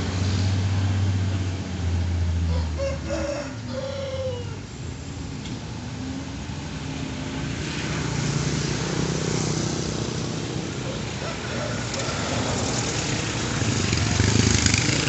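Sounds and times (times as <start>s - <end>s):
road noise: 0.0s - 15.0s
vehicle engine running: 9.9s - 15.0s.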